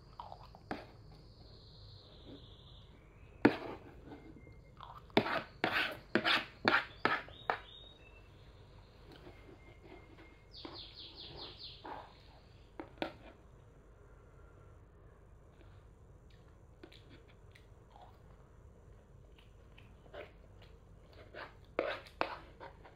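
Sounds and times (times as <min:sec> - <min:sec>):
child crunching and chewing food: 0:00.0 - 0:00.8, 0:04.8 - 0:05.2, 0:15.6 - 0:22.9.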